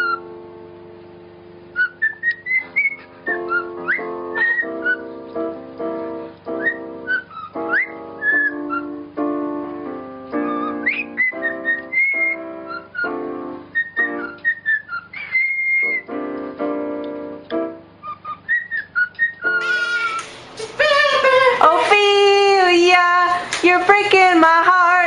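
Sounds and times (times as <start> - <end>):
parrot whistling: 0.0 - 0.2, 1.8 - 5.2, 6.5 - 9.0, 10.4 - 16.1, 18.0 - 21.9
keyboard music: 0.0 - 23.8.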